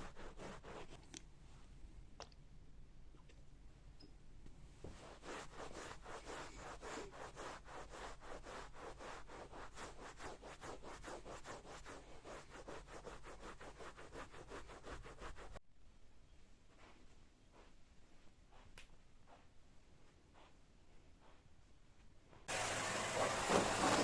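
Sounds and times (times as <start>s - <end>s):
rapid scrubbing of a surface: 0.0s - 1.0s, 4.9s - 15.6s, 22.5s - 24.0s.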